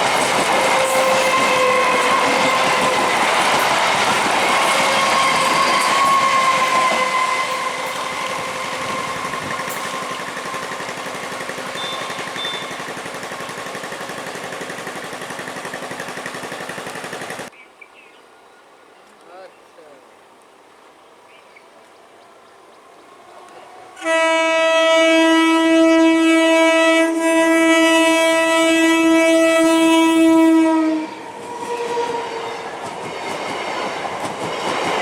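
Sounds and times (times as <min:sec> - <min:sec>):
train wheels clattering: 0:00.0 - 0:17.5, 0:31.3 - 0:35.0
train whine: 0:00.0 - 0:17.5, 0:22.3 - 0:35.0.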